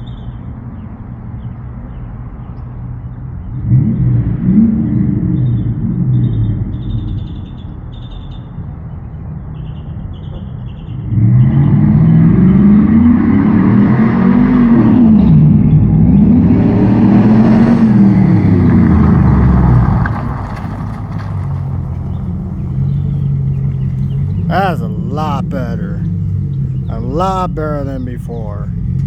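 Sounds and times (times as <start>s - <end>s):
truck engine accelerating: 11.2s - 29.0s.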